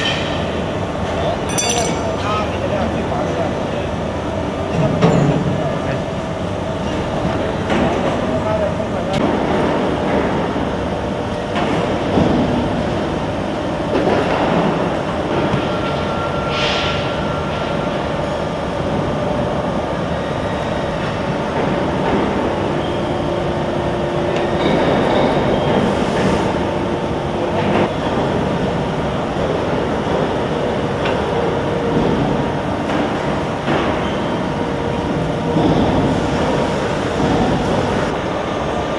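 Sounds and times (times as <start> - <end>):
machinery rumble and clatter: 24.0 - 38.9.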